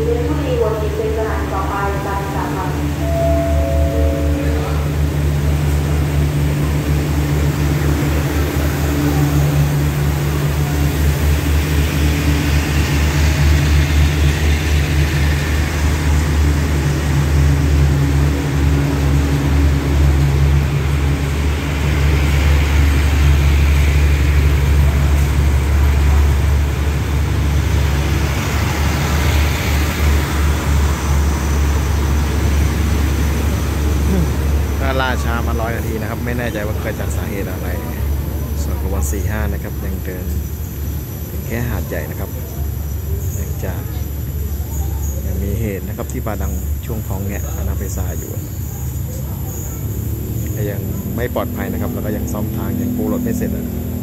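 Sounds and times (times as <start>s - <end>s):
diesel engine drone: 0.0s - 54.0s
train coaches rumbling and rattling: 0.0s - 54.0s.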